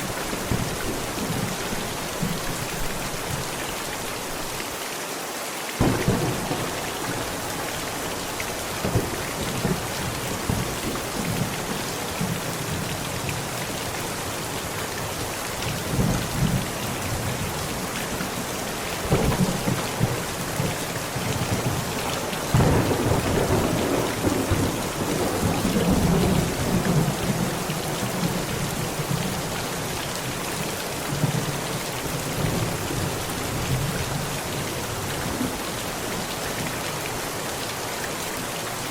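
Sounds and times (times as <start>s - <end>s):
heavy rain on a tent: 0.0s - 38.9s
thunder rolling: 5.8s - 11.6s, 19.0s - 28.4s.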